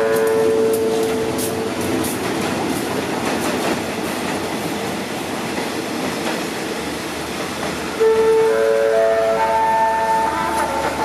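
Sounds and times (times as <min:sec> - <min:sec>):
wheels clicking over rail joints: 0:00.0 - 0:06.6
train wheels rumbling on rail: 0:00.0 - 0:11.0.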